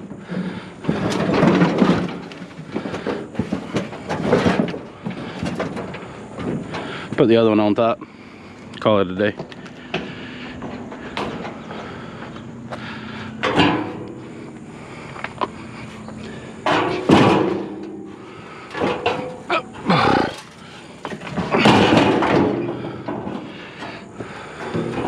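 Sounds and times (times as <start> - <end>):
scrap metal scraping and clanking: 0.3 - 8.5, 13.2 - 25.0.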